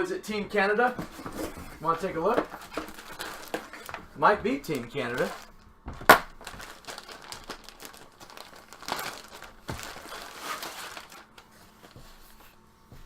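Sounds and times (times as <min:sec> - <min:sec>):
packaging crinkling and rustling: 0:01.0 - 0:12.5.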